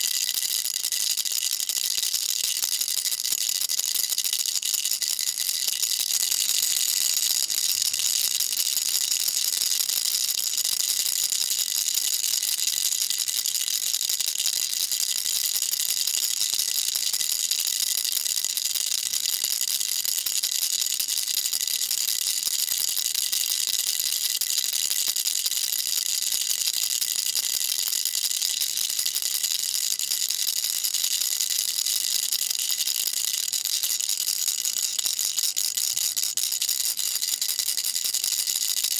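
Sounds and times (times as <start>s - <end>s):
baby rattle shaking: 0.0s - 17.1s.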